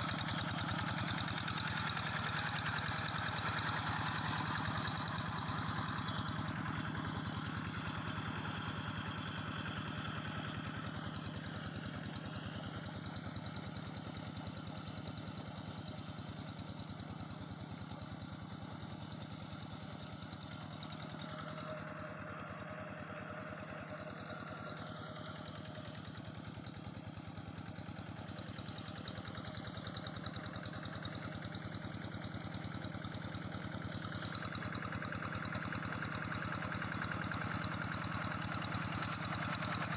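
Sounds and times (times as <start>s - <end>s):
tractor engine chugging: 0.0s - 39.9s.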